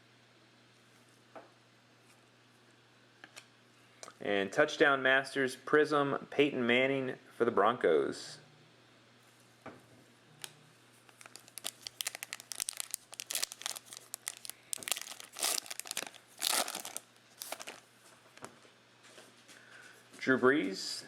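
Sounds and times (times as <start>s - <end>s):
foil wrapper tearing and crinkling: 11.1s - 17.8s.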